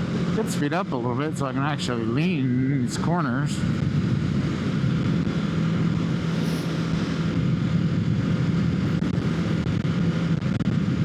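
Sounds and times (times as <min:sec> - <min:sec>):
motorcycle engine cruising: 0:00.0 - 0:11.0
wind rushing: 0:03.6 - 0:11.0.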